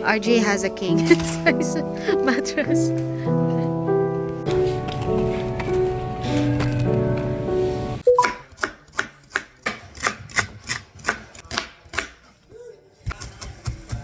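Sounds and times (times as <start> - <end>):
knife chopping on cutting board: 8.2 - 12.2.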